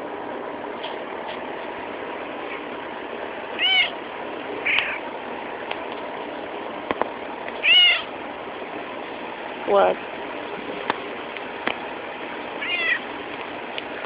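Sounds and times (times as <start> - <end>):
steady background hum: 0.0 - 14.0
cat meowing: 3.6 - 4.0, 4.6 - 5.0, 7.6 - 8.1, 12.6 - 13.1.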